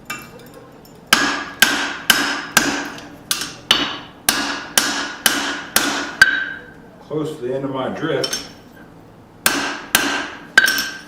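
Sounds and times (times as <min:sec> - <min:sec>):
hammer striking steel: 0:01.1 - 0:06.7, 0:09.4 - 0:11.0.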